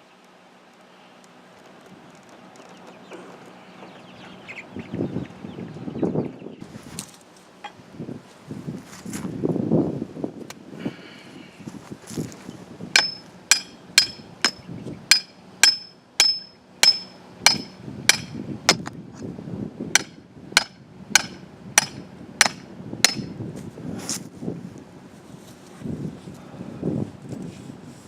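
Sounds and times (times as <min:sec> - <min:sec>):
hammer blows ringing on metal: 0:13.0 - 0:18.8, 0:20.0 - 0:23.4.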